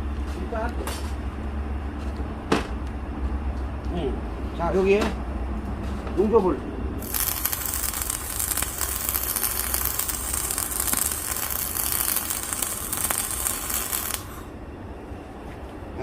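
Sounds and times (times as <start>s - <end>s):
arc welding sizzle: 7.0s - 14.5s.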